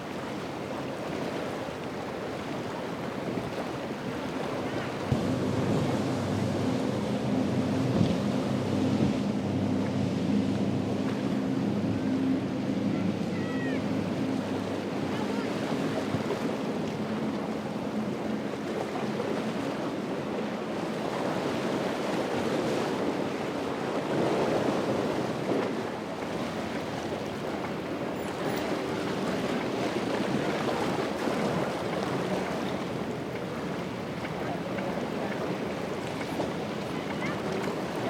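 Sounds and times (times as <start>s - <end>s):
boat engine drone: 0.0s - 38.0s
waves breaking: 0.0s - 38.0s
wind buffeting microphone: 3.2s - 16.8s.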